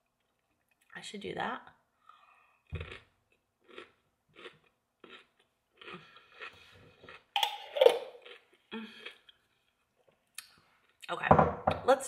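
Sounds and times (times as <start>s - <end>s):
crunchy chewing: 2.8s - 7.3s.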